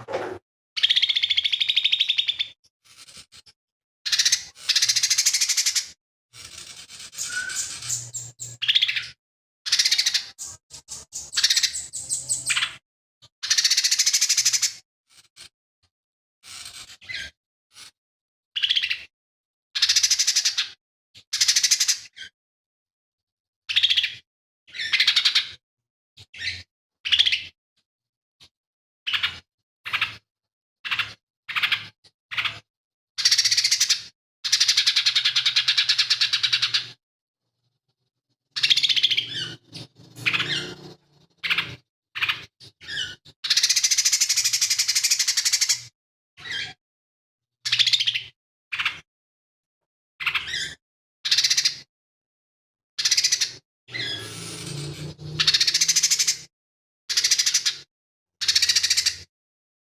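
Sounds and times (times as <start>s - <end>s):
bird chattering trills: 6.5s - 9.1s, 9.7s - 12.8s, 38.6s - 45.7s, 53.0s - 56.5s
bird singing high-pitched phrases: 7.1s - 12.8s.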